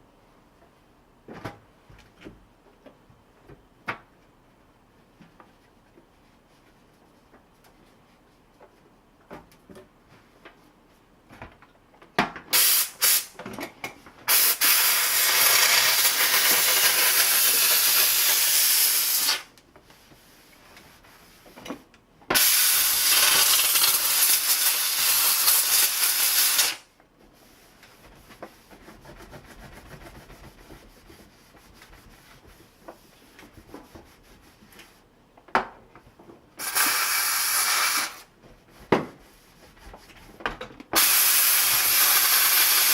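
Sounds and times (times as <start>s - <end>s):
steam cleaner hissing blasts: 12.5s - 13.4s, 14.3s - 19.5s, 22.3s - 26.8s, 36.6s - 38.3s, 41.0s - 42.9s.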